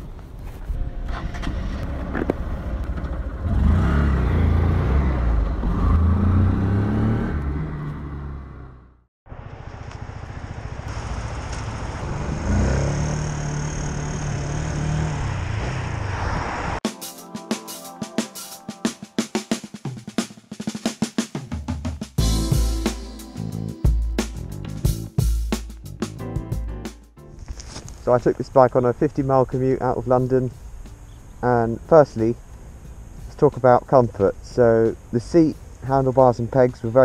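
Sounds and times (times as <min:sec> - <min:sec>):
motorcycle engine revving: 0:01.1 - 0:09.1, 0:10.0 - 0:16.8
drums: 0:16.8 - 0:28.0.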